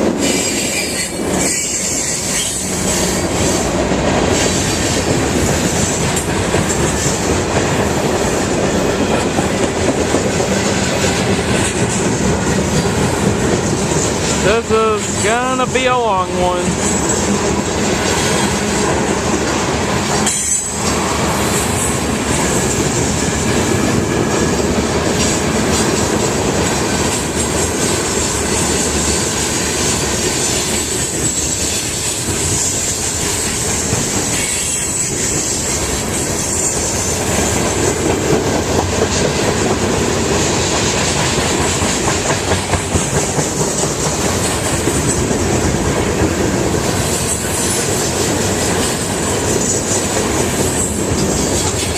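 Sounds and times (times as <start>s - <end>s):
train wheels rolling on rails: 0.0s - 15.7s, 16.7s - 51.9s
high-pitched wheel squeal: 0.2s - 3.2s.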